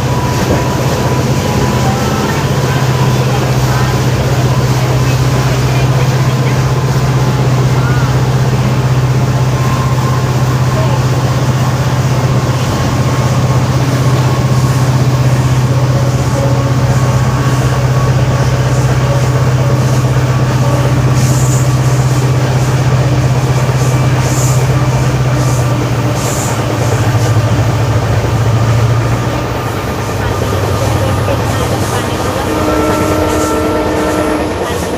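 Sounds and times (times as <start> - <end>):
diesel locomotive engine hum: 0.0 - 34.9.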